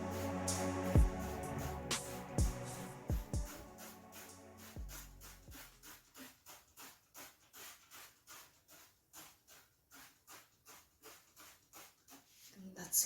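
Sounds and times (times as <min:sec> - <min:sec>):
music with deep bass beat: 0:00.0 - 0:05.6
rhythmic scrubbing: 0:00.0 - 0:07.6.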